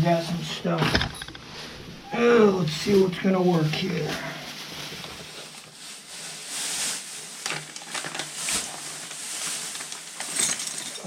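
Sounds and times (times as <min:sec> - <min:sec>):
packaging rustling: 0:02.8 - 0:11.0.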